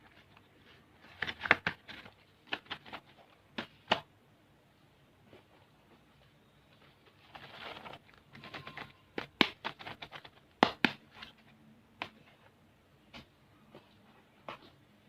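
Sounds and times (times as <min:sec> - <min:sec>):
plastic packets clicking and tapping: 0:00.0 - 0:04.1, 0:07.2 - 0:11.3
plastic wrappers rustling: 0:07.0 - 0:09.0.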